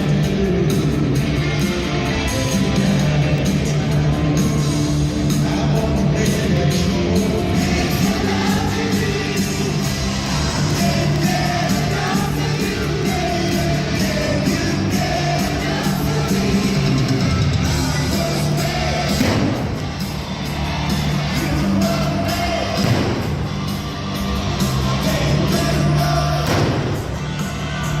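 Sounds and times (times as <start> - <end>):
live rock band with singer: 0.0 - 28.0
crowd yelling: 7.1 - 28.0.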